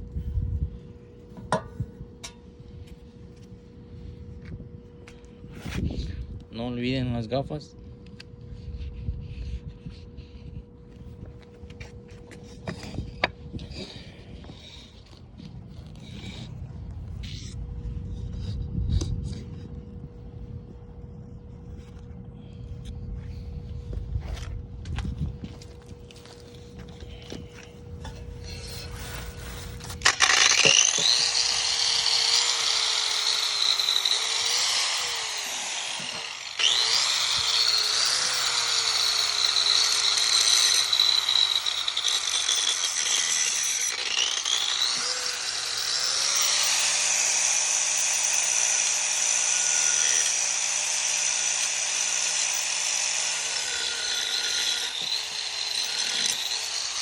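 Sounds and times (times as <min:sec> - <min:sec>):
power tool grinding metal pipe: 0:01.2 - 0:03.5, 0:26.1 - 0:57.0.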